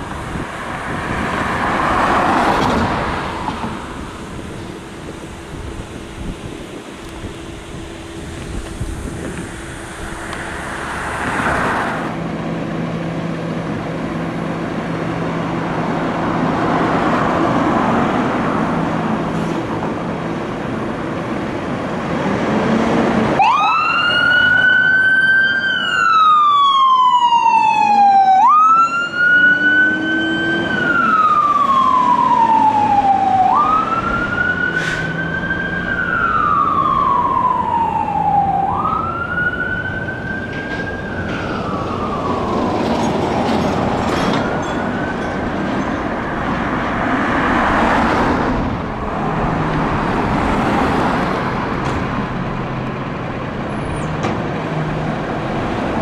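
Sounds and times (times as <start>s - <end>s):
hiss and rumble: 3.3s - 12.4s
siren wailing: 23.4s - 46.4s.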